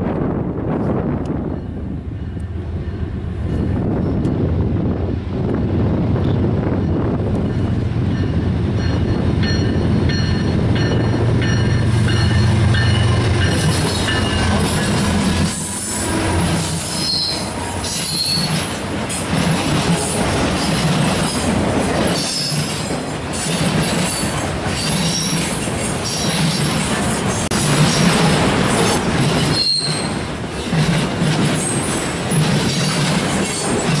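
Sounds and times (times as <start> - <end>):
diesel locomotive engines droning: 0.0 - 34.0
wheels squealing: 12.2 - 18.8, 29.4 - 30.3.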